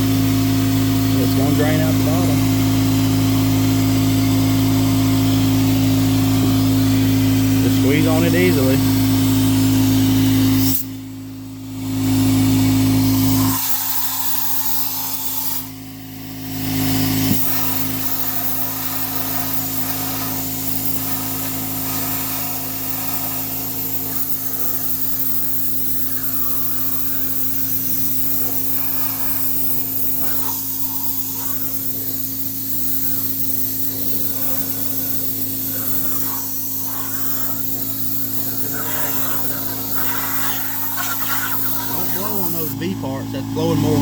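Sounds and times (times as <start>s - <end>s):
steady low hum: 0.6s - 44.0s
air blowgun hissing: 6.4s - 9.1s, 13.0s - 42.9s.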